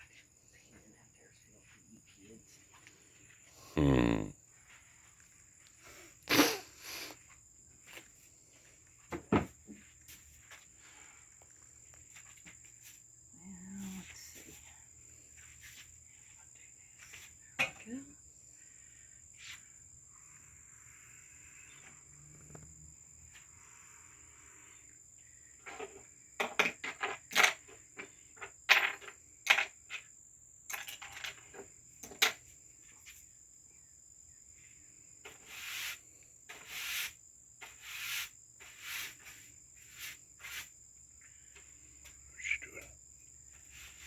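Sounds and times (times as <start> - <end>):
crickets trilling: 0.0 - 44.0
short scraping strokes: 35.3 - 40.7.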